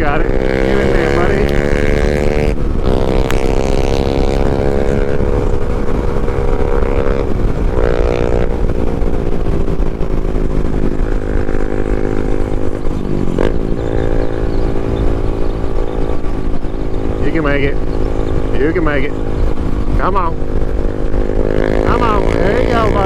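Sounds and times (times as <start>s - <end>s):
motorcycle engine running: 0.0s - 23.0s
wind rush on microphone: 0.0s - 23.0s.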